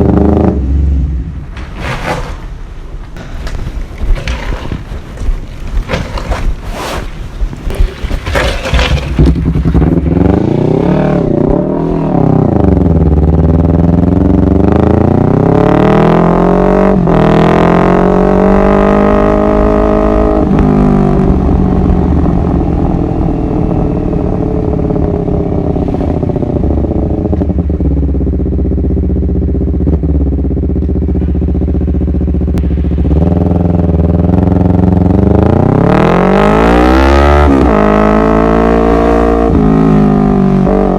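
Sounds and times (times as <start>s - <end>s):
motorcycle engine revving: 0.0s - 1.5s, 7.7s - 40.9s.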